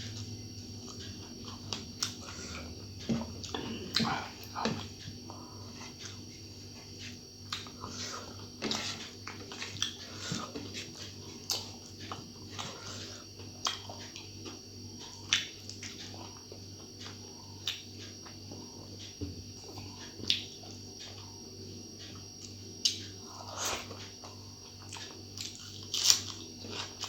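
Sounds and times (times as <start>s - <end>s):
faint steady hum: 0.0s - 27.0s
chewing with wet mouth smacks: 7.0s - 8.4s, 9.2s - 21.4s, 22.0s - 27.0s.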